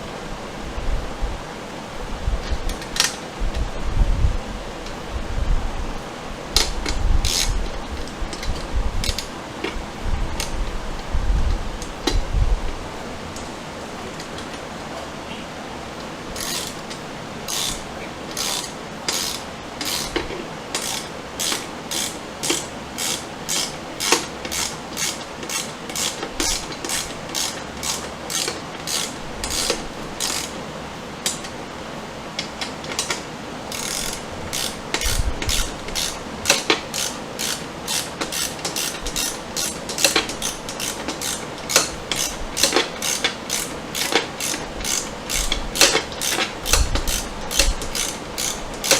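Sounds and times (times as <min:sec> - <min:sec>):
hand ratchet clicking: 0:02.7 - 0:03.6, 0:06.6 - 0:09.8, 0:10.4 - 0:10.6, 0:16.0 - 0:30.6, 0:31.2 - 0:31.6, 0:32.4 - 0:48.9.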